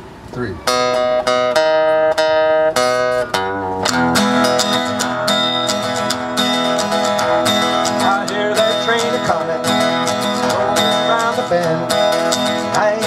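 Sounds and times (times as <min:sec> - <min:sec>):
guitar strumming chords: 0:00.6 - 0:13.0.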